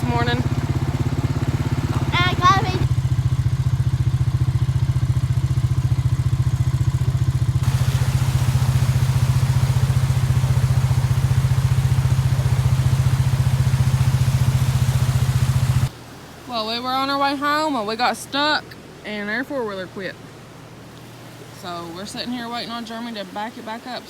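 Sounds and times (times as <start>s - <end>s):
atv engine running: 0.0s - 16.2s
rushing noise: 7.6s - 15.9s.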